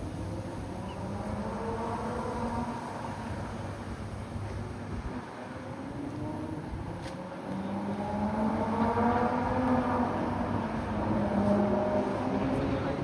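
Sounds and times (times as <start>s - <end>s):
street background noise: 0.0s - 13.0s
vehicle engine humming: 0.0s - 13.0s.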